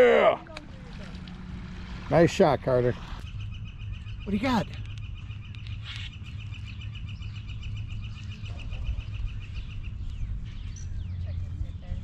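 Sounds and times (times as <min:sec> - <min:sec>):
low steady rumble: 0:00.0 - 0:12.0
bird trilling: 0:03.0 - 0:11.4.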